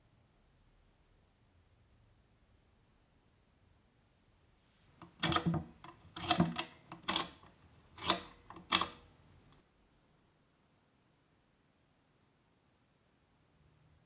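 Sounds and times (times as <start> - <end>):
sharp clicks and knocks: 5.0 - 9.1.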